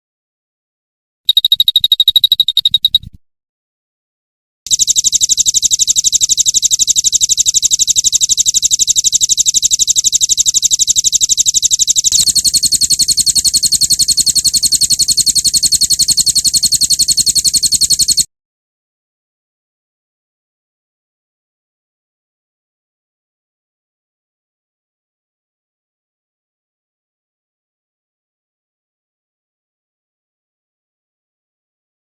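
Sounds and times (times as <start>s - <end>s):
high-pitched bird trill: 1.3s - 3.1s.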